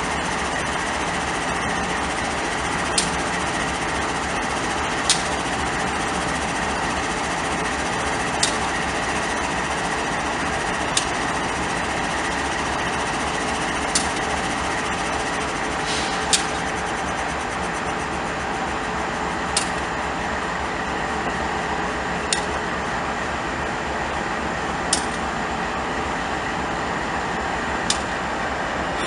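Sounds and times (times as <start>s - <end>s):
sharp rail clicks: 5.0s - 5.6s, 15.5s - 16.8s, 24.9s - 25.3s, 27.8s - 28.2s.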